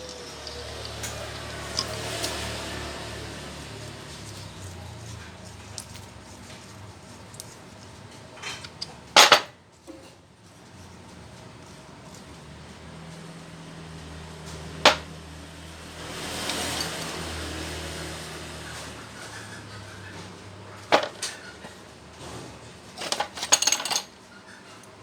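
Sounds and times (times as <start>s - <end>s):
metal knocks and clatter: 14.9s - 15.1s.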